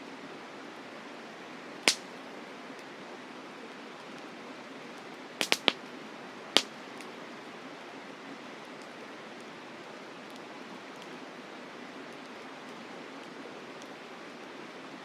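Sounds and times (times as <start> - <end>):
campfire wood cracking: 1.8 - 2.1, 5.4 - 5.9, 6.6 - 7.1
steady rushing hiss: 1.9 - 2.4, 5.1 - 8.1.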